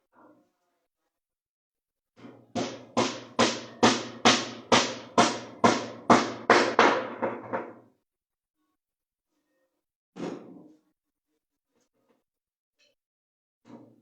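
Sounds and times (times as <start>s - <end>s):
hammer driving nails into wood: 2.6s - 7.7s.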